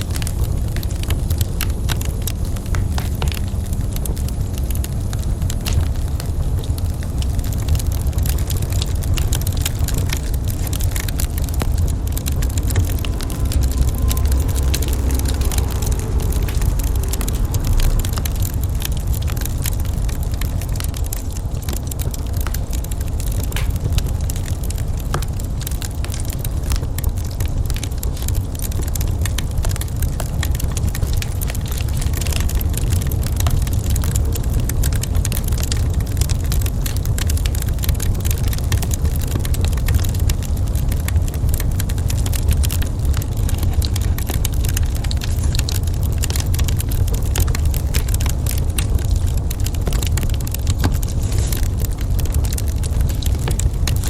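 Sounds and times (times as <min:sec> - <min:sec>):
low rumble of fire: 0:00.0 - 0:54.0
wood fire crackling and popping: 0:00.0 - 0:54.0.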